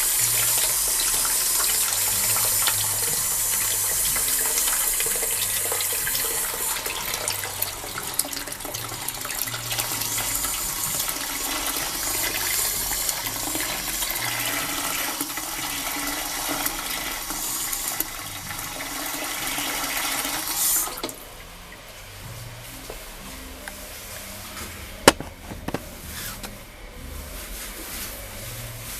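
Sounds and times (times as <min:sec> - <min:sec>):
water hissing: 0:00.0 - 0:15.0
toilet flushing: 0:00.0 - 0:22.2.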